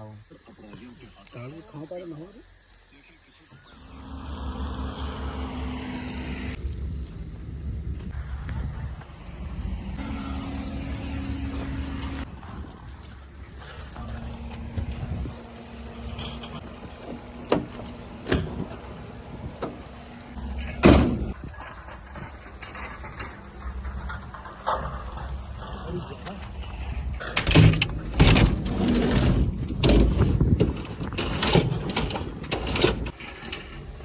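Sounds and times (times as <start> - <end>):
crickets chirping drone: 0.0 - 34.0
low engine rumble: 3.7 - 21.4.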